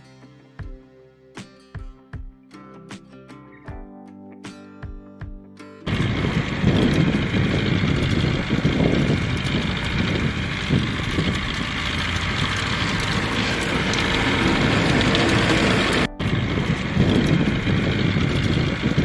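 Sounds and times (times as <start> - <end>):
plastic wheels crunching on dirt: 5.9 - 19.0.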